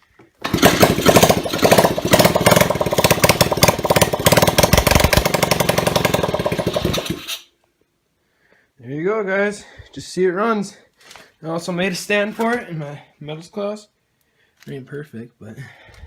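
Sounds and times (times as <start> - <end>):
motorbike engine barking: 0.5 - 7.3.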